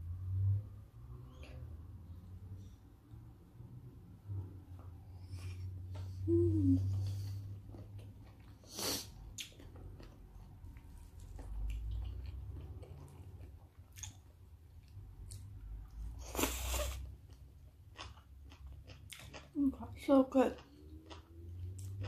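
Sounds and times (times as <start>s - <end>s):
wet chewing smacks and clicks: 7.5s - 15.6s, 16.7s - 19.6s, 20.5s - 22.0s.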